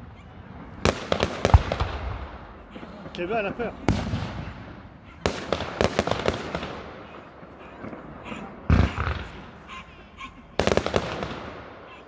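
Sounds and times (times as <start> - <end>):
fireworks cracks and bangs: 0.7 - 9.6, 10.6 - 11.9
deep firework boom: 3.9 - 6.9.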